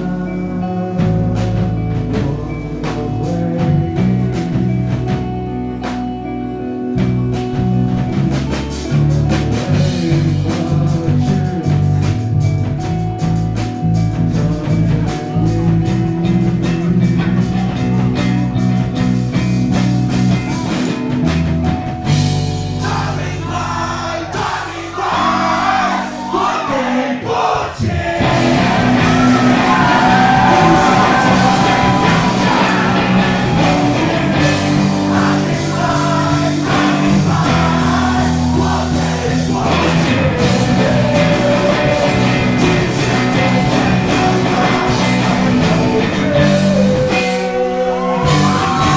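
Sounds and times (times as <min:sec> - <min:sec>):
person singing: 0:00.0 - 0:05.2, 0:22.8 - 0:48.9
live rock band playing: 0:00.0 - 0:26.9, 0:28.2 - 0:48.9.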